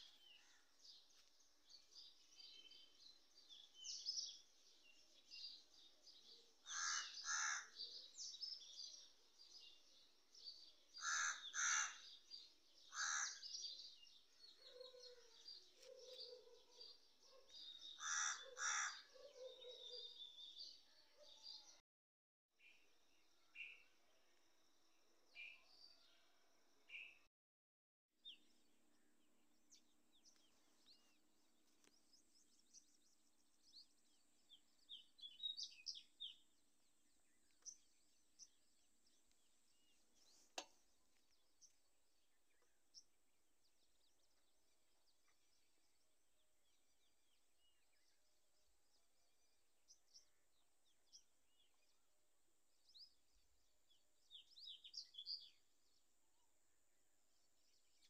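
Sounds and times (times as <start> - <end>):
faint bird chirps: 0.0 - 9.9, 14.2 - 21.8.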